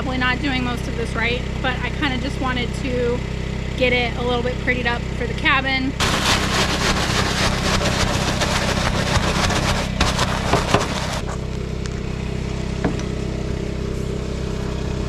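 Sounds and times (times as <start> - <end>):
generator engine running: 0.0 - 15.0
loud scratchy hiss: 6.0 - 11.4.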